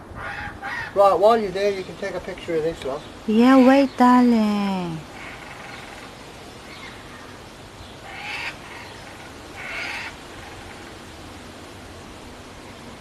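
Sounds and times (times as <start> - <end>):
background hiss: 0.0 - 13.0
kookaburra calls: 0.2 - 1.0, 5.1 - 6.1, 8.0 - 11.0.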